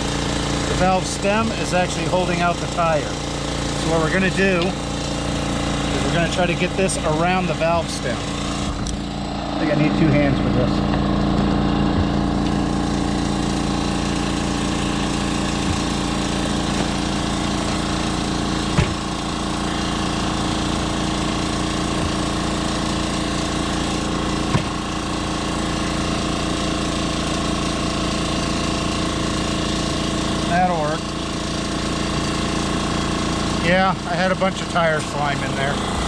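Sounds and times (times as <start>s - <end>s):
motor drone: 0.0s - 36.0s
sharp knocks: 15.6s - 16.1s, 18.6s - 19.2s, 24.5s - 24.8s.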